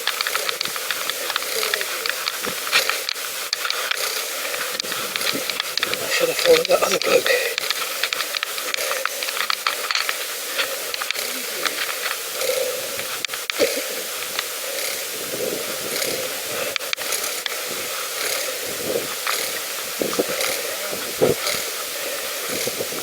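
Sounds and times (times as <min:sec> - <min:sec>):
bicycle clicks and rattles: 0:00.0 - 0:23.0
wind and tyres hissing: 0:00.0 - 0:23.0.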